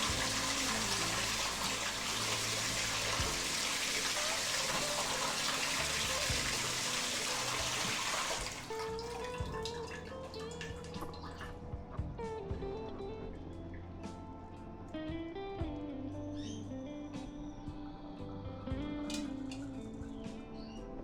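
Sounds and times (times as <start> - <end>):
water dripping: 0.0 - 11.6
water running from a tap: 0.0 - 11.6.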